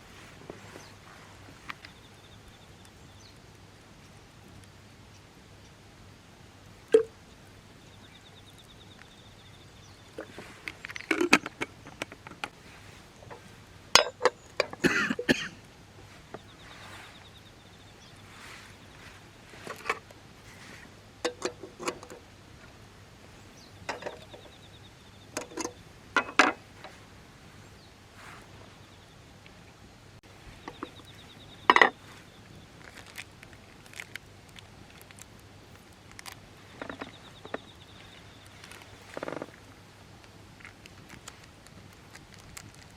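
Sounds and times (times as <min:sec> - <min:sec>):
cookware and utensils clinking: 0:14.0 - 0:15.5, 0:25.4 - 0:26.6.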